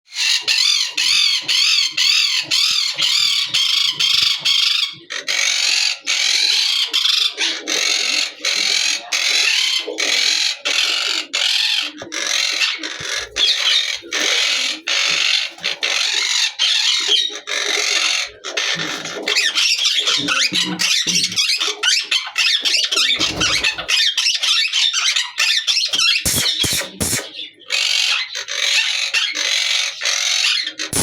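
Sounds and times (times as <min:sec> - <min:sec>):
parakeet shrill calls: 0:19.3 - 0:29.7, 0:30.4 - 0:31.0.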